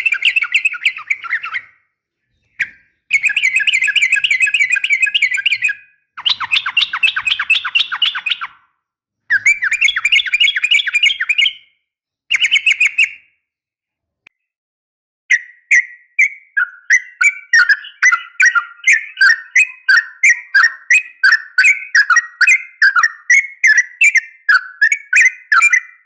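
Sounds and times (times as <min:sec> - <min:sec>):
bulbul chattering call: 0:00.0 - 0:01.7, 0:02.6 - 0:08.5.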